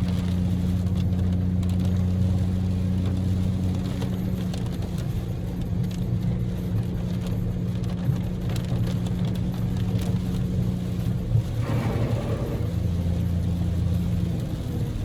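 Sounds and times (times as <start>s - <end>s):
raindrops hitting car: 0.0s - 15.0s
car engine droning: 10.1s - 15.0s
road noise: 10.8s - 15.0s.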